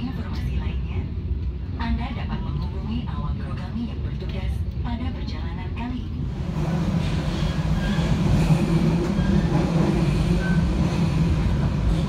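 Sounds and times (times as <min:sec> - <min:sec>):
train wheels rumbling on rails: 0:05.9 - 0:12.0.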